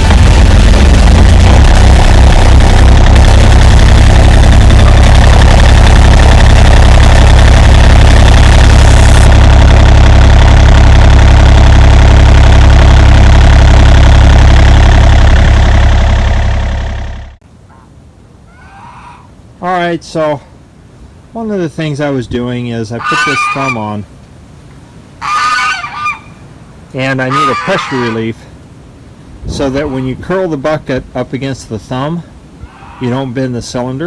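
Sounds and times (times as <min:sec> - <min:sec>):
diesel engine running: 0:00.0 - 0:17.4.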